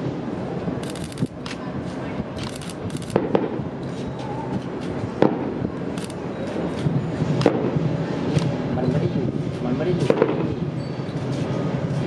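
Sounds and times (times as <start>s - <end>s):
fireworks bangs: 3.1s - 3.7s, 5.1s - 5.7s, 10.0s - 10.6s.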